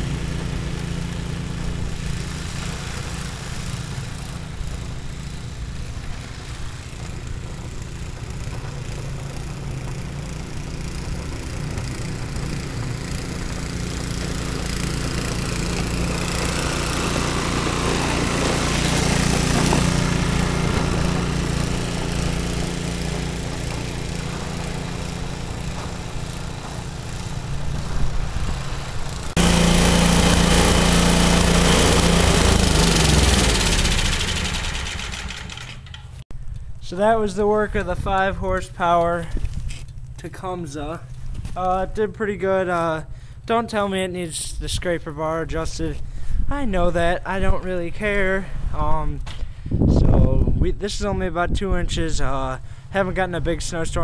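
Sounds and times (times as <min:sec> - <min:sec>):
snowblower engine running: 0:00.0 - 0:36.2.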